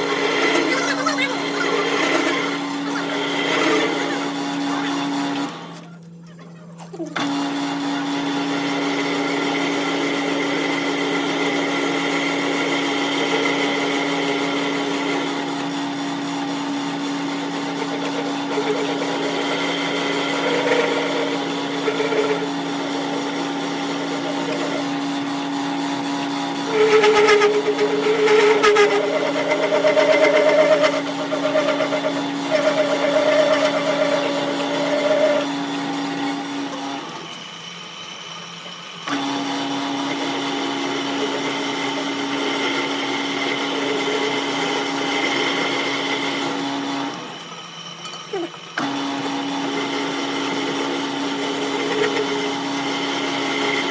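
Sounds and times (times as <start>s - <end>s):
louder machine tones: 0.0s - 5.8s
workshop machine humming: 0.0s - 53.9s.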